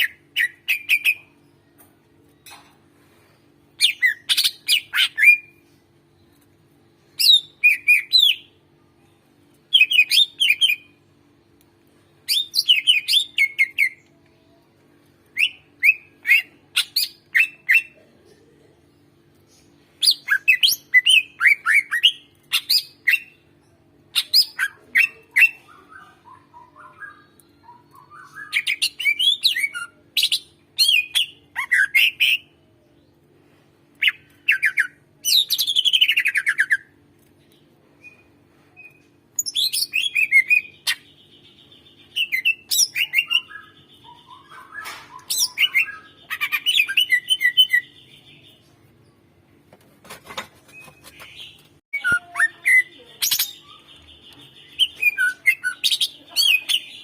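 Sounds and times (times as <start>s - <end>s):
faint steady hum: 0.0s - 49.8s
bird singing sharp chirps and trills: 50.7s - 57.0s.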